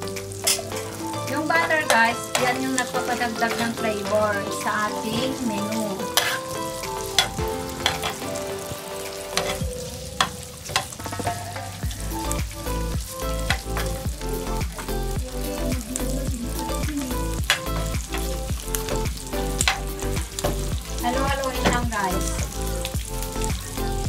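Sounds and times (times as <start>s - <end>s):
background music with bass: 0.0s - 24.0s
meat sizzling in a frying pan: 0.0s - 24.0s
metal spoon scraping a pan: 0.4s - 8.4s, 9.3s - 11.8s.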